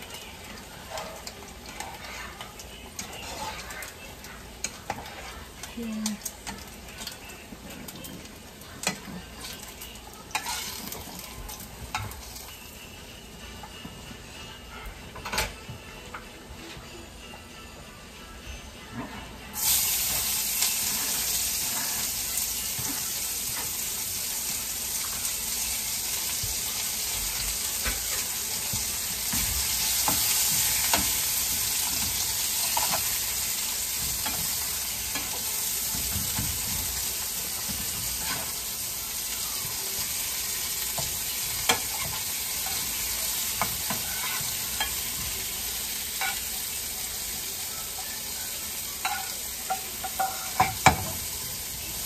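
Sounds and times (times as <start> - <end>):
onions and potatoes sizzling: 0.0 - 15.6, 18.8 - 52.0
fork clinking against a pan: 49.0 - 51.1.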